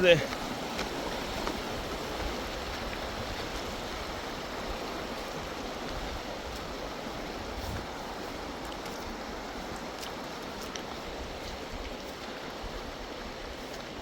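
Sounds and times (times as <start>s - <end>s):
river rushing: 0.0s - 14.0s.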